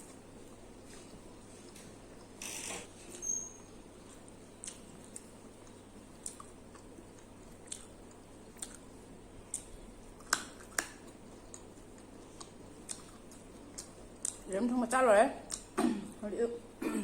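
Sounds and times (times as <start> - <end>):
close chewing: 4.0 - 14.5
wet mouth clicks: 9.5 - 14.5, 15.5 - 15.7.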